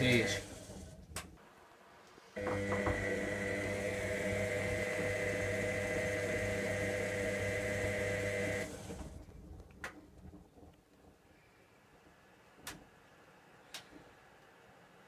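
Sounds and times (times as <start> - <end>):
washing machine motor humming: 0.0 - 1.3, 2.4 - 9.5.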